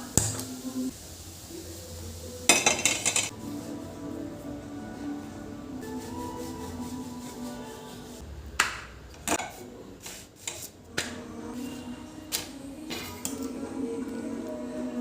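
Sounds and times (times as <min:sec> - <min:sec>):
soft background music: 0:02.4 - 0:08.2, 0:10.8 - 0:15.0.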